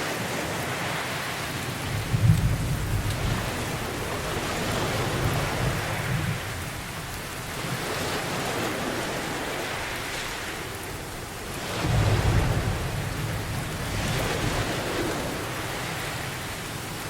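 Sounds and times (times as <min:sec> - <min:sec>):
steady rain falling: 0:00.0 - 0:17.0
low rumble of thunder: 0:01.8 - 0:08.7, 0:11.7 - 0:17.0.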